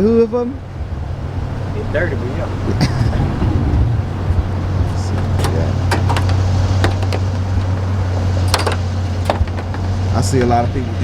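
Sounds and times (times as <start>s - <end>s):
car engine idling: 0.0s - 11.0s
sharp clicks and knocks: 4.9s - 10.2s.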